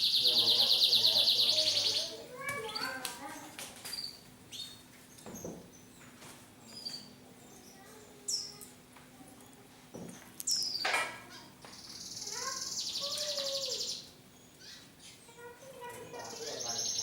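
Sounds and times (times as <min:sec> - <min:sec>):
canaries chirping and singing: 0:00.0 - 0:02.8, 0:16.0 - 0:17.0.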